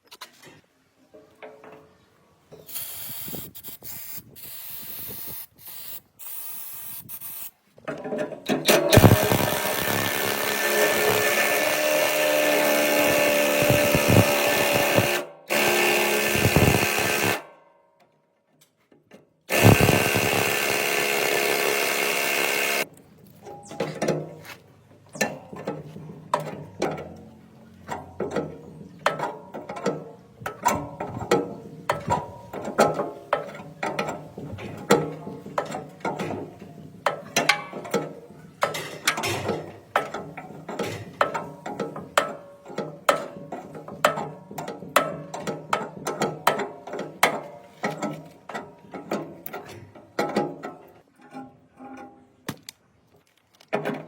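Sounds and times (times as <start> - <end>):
grinding or scraping: 7.8 - 17.4, 19.5 - 28.8
power tool whining: 8.7 - 17.4, 19.5 - 22.9.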